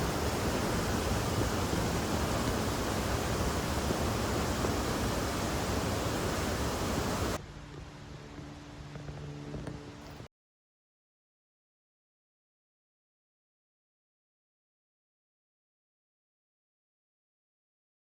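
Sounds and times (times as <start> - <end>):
waterfall roaring: 0.0 - 7.4
faint steady hum: 0.0 - 10.2.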